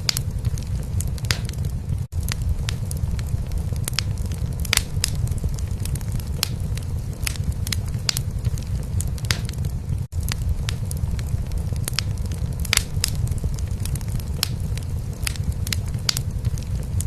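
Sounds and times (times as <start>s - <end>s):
fire popping and snapping: 0.0s - 17.0s
wood fire crackling: 0.0s - 17.0s.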